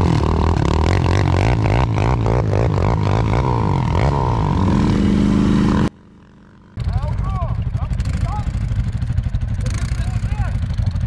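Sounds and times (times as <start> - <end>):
atv engine revving: 0.0 - 11.0.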